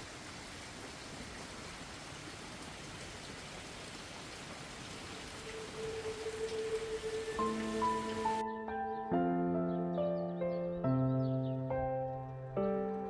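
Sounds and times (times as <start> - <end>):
rain falling: 0.0 - 8.4.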